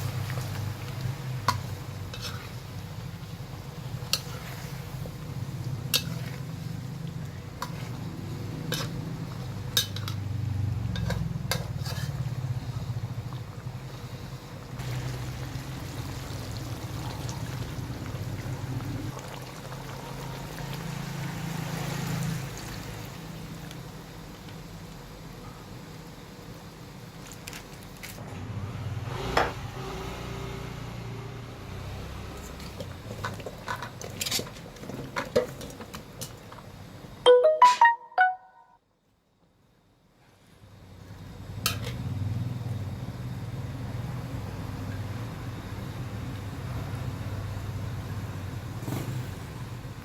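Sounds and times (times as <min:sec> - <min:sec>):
metal spoon clinking on pot: 0:09.8 - 0:10.2.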